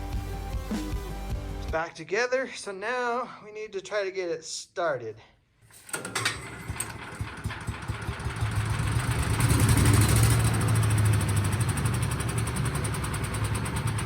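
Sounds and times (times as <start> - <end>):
small gas engine running: 5.8 - 14.0.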